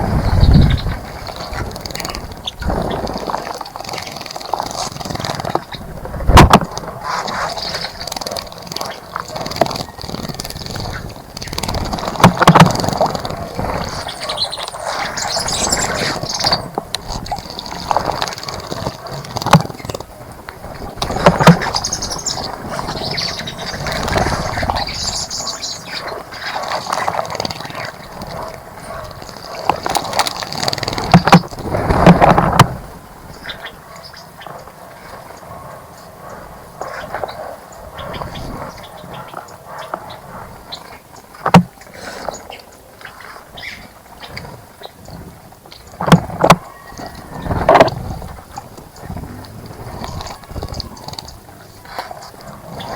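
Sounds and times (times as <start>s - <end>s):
birds chirping: 12.1s - 16.8s, 21.0s - 27.0s.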